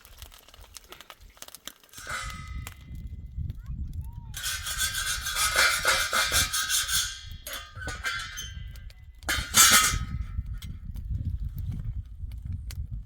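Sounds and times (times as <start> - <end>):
loud metal clash: 2.0 - 2.8, 4.4 - 10.3
metal clanging and clinking: 2.0 - 2.9, 4.4 - 10.7.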